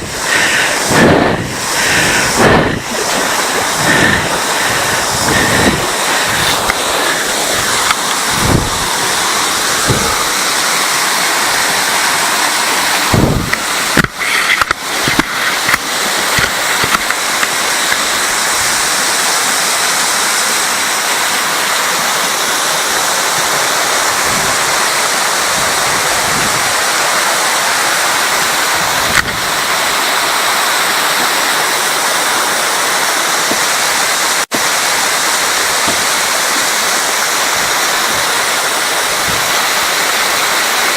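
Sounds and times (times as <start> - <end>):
rush of falling water: 0.0 - 40.9
low thumps: 0.8 - 6.8, 7.6 - 9.0, 9.8 - 10.4, 13.1 - 14.2.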